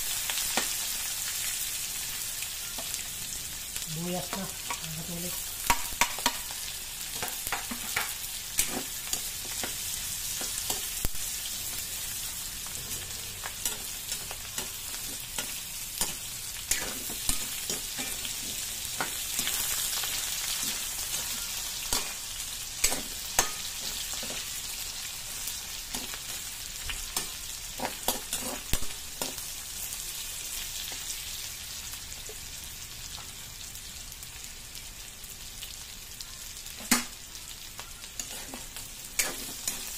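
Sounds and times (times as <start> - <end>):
meat sizzling in a wok: 0.0 - 39.9
metal spatula scraping a wok: 8.6 - 22.2, 27.1 - 29.4, 38.2 - 39.9.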